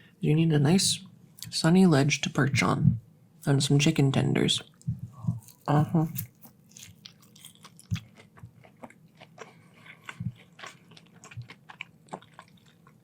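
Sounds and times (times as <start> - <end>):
chewing crunches: 5.2 - 13.0.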